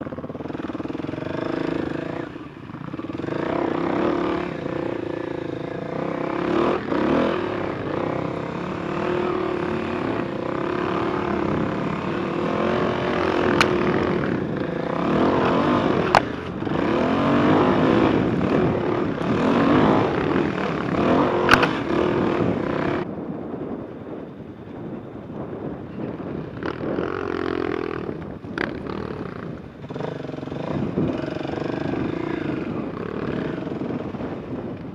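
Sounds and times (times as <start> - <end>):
motorcycle engine revving: 0.0 - 23.1, 25.4 - 34.9
sharp clicks: 21.5 - 21.8.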